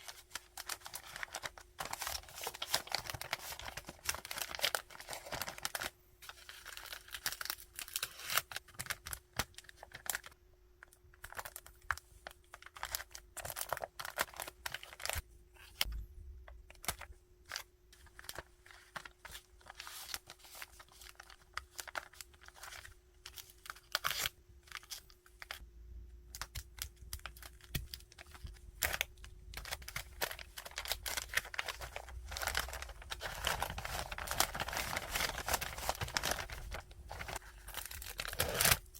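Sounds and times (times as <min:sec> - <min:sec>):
packaging rustling and crinkling: 0:00.0 - 0:10.4, 0:26.6 - 0:38.9
faint steady hum: 0:00.0 - 0:38.9
packaging tearing: 0:28.8 - 0:38.9.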